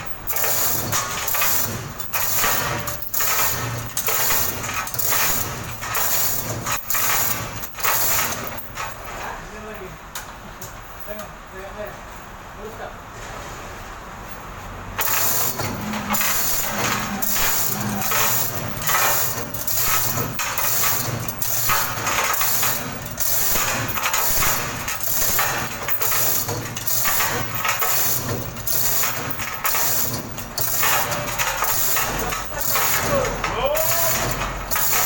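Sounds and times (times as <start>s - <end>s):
short clattering noises: 0.0s - 9.4s, 15.0s - 35.0s
engine running: 14.8s - 35.0s.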